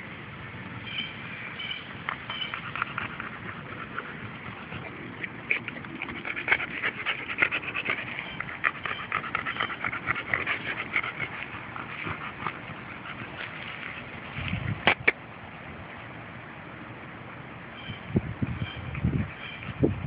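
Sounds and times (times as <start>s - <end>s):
dog panting: 2.3s - 14.4s.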